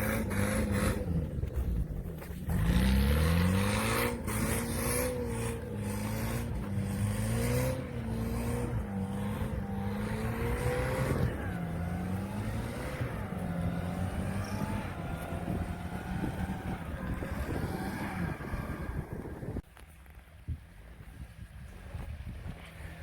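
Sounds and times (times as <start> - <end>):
off-road engine labouring: 0.0 - 23.0.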